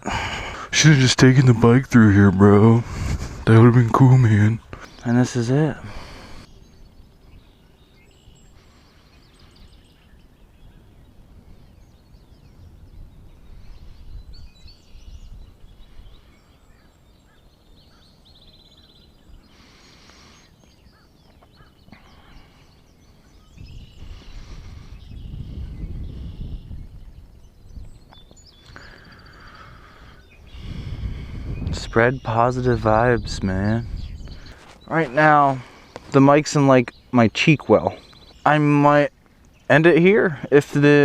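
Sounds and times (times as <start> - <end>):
birds chirping and trilling: 0.0 - 41.0
wind rumble on microphone: 2.0 - 4.8, 9.4 - 19.5, 23.1 - 28.6, 29.2 - 35.8
gusts of rustling noise: 2.8 - 3.6, 10.2 - 16.4, 23.0 - 28.6, 29.7 - 36.2.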